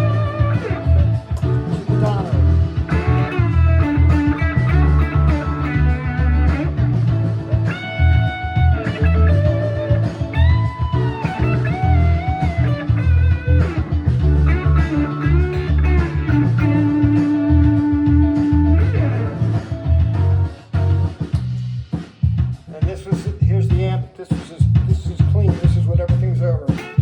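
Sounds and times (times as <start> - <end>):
overdriven electric guitar lead: 0.0 - 20.4, 26.8 - 27.0
blues-rock backing track: 0.0 - 27.0.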